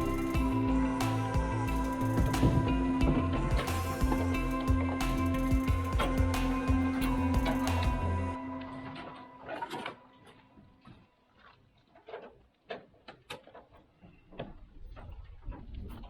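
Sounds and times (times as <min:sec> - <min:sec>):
background music: 0:00.0 - 0:10.8.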